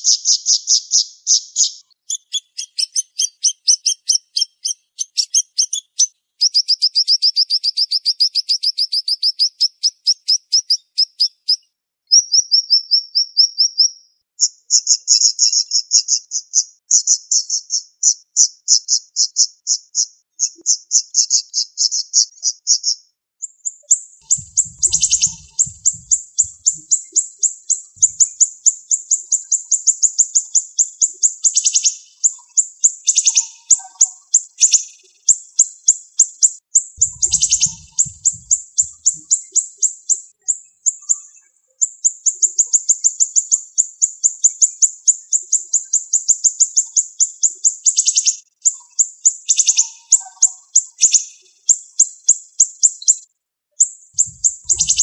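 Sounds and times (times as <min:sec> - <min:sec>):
songbird singing rapid high notes: 0:24.2 - 0:27.1, 0:28.0 - 0:28.6, 0:37.0 - 0:39.4, 0:54.2 - 0:55.0.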